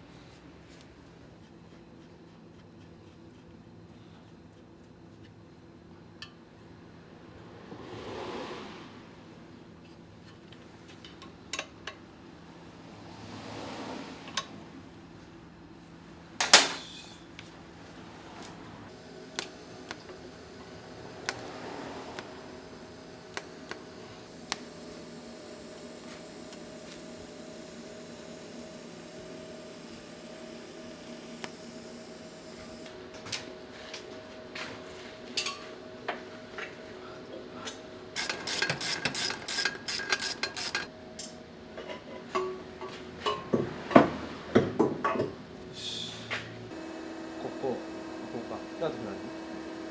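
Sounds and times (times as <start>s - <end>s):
steady low hum: 18.7s - 33.2s.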